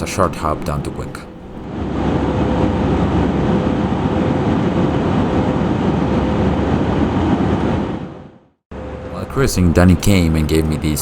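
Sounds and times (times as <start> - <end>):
airplane cabin engine rush: 0.0 - 11.0.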